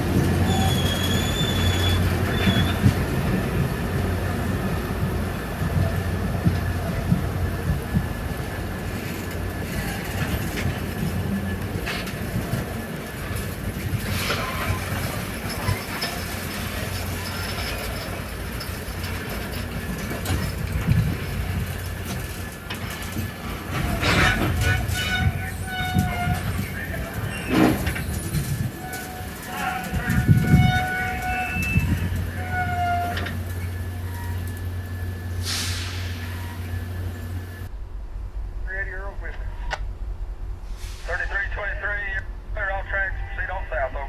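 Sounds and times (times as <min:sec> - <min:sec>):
train rolling on rails: 0:00.0 - 0:44.0
train wheels squealing: 0:00.4 - 0:03.1, 0:14.1 - 0:19.7, 0:23.8 - 0:37.7.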